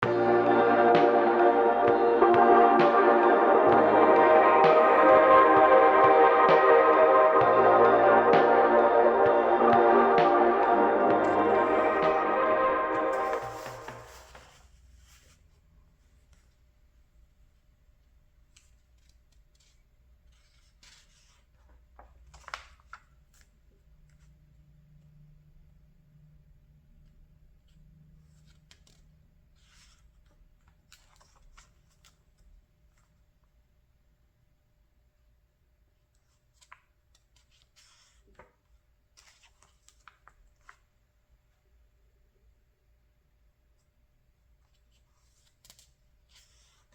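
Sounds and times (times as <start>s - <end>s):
paper pages rustling: 13.3s - 15.4s, 28.4s - 33.1s, 36.2s - 40.9s.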